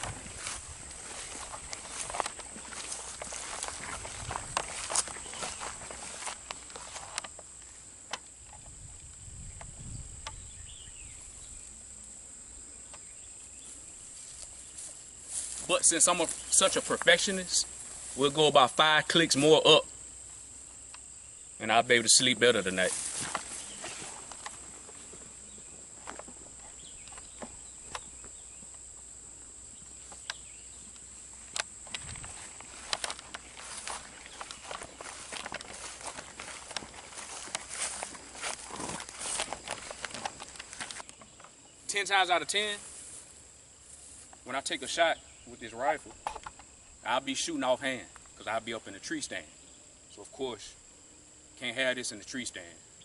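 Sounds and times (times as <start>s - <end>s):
crickets buzzing: 0.0s - 53.0s
insects chirping: 0.0s - 53.0s
faint clicks from handling gear: 30.1s - 41.6s.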